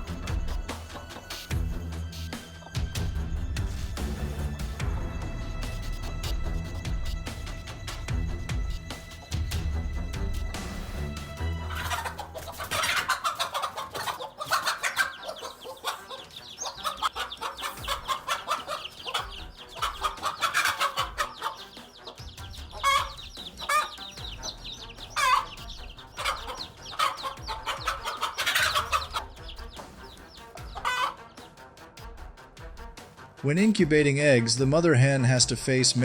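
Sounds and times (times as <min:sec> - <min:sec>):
hen clucking: 0:11.6 - 0:31.6.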